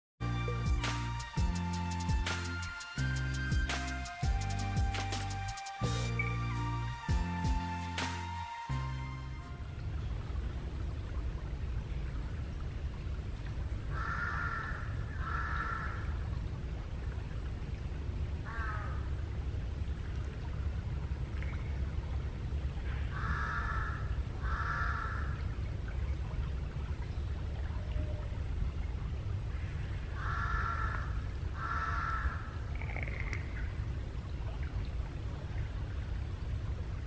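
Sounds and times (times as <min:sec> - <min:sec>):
crow cawing: 0:13.9 - 0:16.0, 0:18.5 - 0:19.0, 0:23.1 - 0:25.4, 0:30.2 - 0:33.2.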